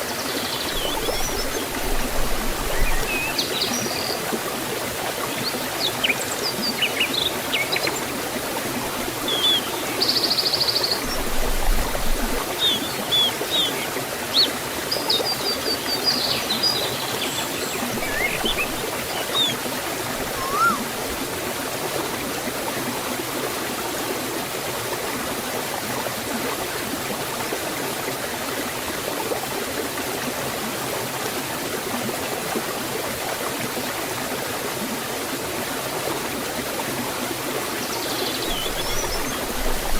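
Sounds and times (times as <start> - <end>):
waterfall and stream rushing: 0.0 - 39.9
birds chirping: 12.4 - 21.0, 38.0 - 39.9.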